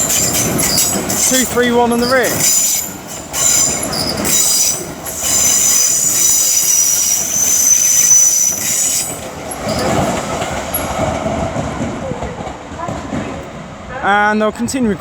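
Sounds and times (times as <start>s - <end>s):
train wheels squealing on rails: 0.0s - 11.1s
train rumble: 0.0s - 15.0s.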